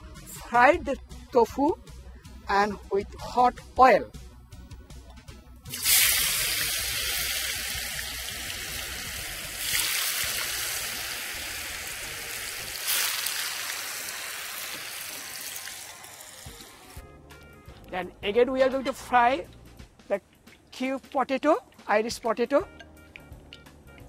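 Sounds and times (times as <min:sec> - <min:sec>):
tofu sizzling in hot oil: 0:05.7 - 0:17.0.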